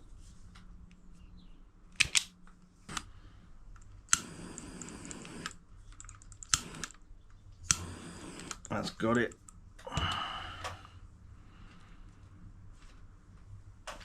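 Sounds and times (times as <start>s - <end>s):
hand tools clicking on wires: 2.0s - 2.3s, 3.8s - 7.0s, 7.7s - 9.6s.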